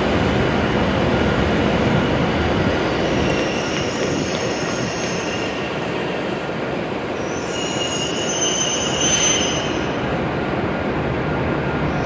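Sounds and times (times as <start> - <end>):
train running noise: 0.0 - 12.0
high-pitched brake squeal: 3.2 - 5.8, 7.2 - 10.0.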